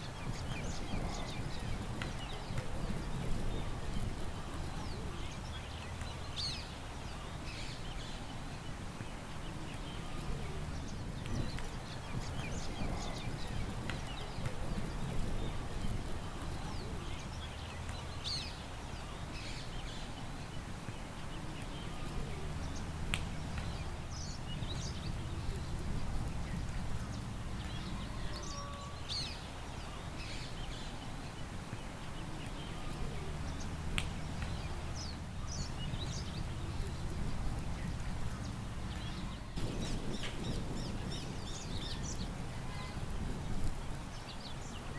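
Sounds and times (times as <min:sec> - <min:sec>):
wind rumble: 0:10.1 - 0:17.6, 0:22.0 - 0:28.5, 0:32.7 - 0:44.9.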